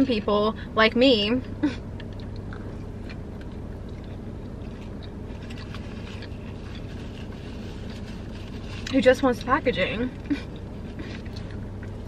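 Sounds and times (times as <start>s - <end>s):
low hum in car: 0.0s - 12.0s
chewing crispy food: 2.0s - 9.5s, 10.1s - 12.0s.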